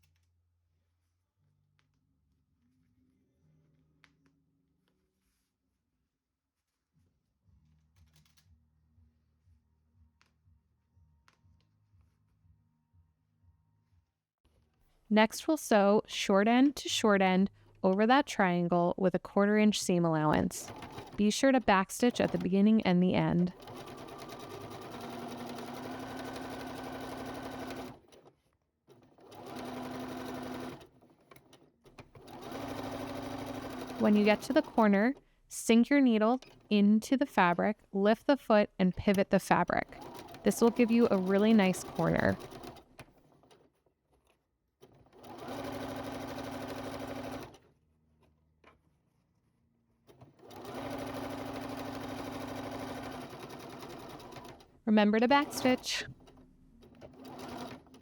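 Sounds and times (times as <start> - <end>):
sewing machine stitching: 20.2 - 35.2, 36.1 - 36.8, 38.9 - 47.7, 50.1 - 58.0.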